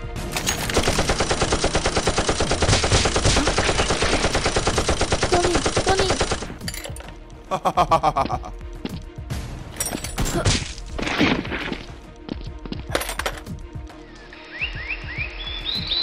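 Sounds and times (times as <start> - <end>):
automatic gunfire: 0.7 - 6.6.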